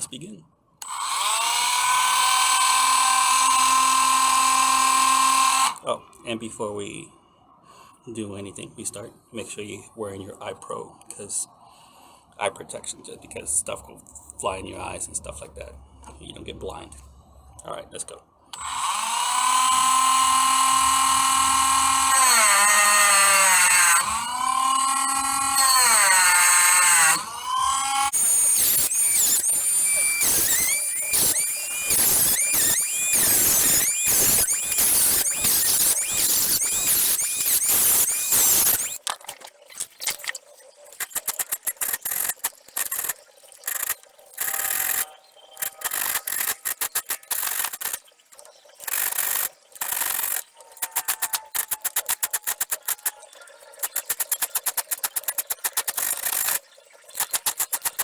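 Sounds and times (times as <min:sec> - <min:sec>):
tool squealing on steel: 0:18.6 - 0:39.0, 0:40.9 - 0:48.1, 0:48.8 - 0:58.0.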